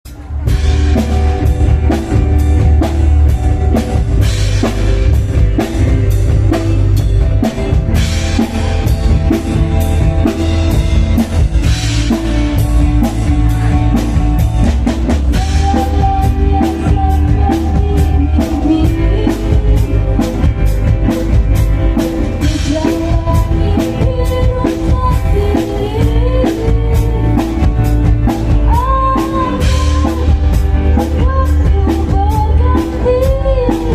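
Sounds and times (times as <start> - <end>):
drum kit beat: 0.0 - 33.9
heavy bass: 0.0 - 33.9
live band playing: 0.0 - 33.9.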